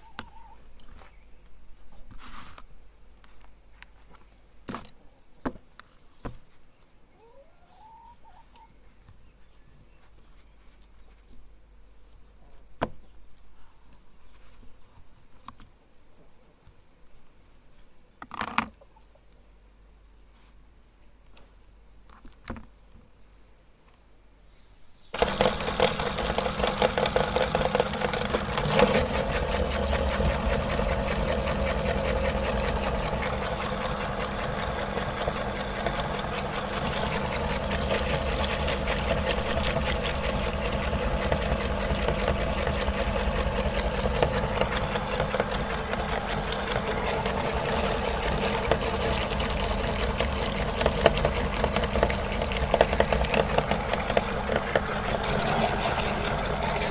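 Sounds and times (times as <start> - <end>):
electric meat grinder motor running: 25.2 - 56.9.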